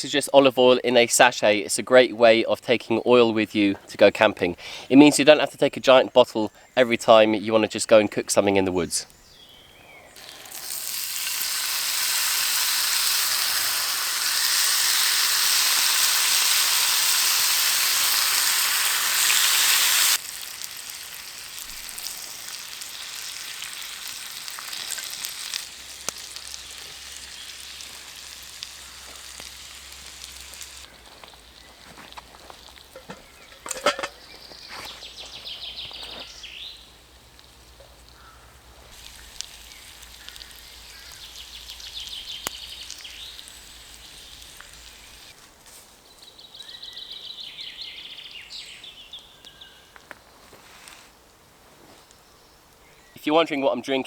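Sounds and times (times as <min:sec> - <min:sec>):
food sizzling in a pan: 0:10.2 - 0:34.1, 0:37.0 - 0:45.4.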